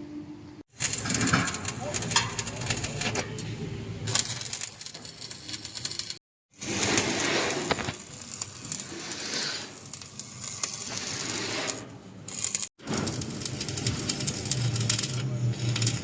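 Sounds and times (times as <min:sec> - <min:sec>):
metal clinking and scraping: 0:00.8 - 0:06.2.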